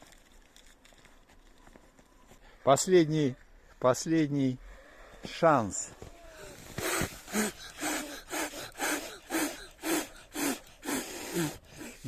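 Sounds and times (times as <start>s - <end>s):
person blowing forceful puffs: 6.1s - 12.0s.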